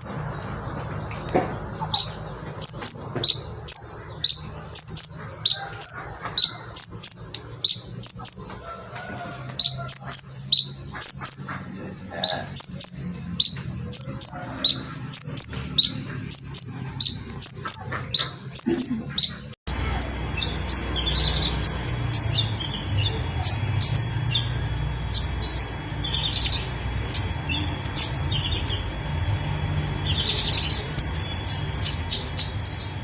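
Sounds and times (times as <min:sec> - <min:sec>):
songbird singing downward-slurred notes: 0:09.5 - 0:33.0.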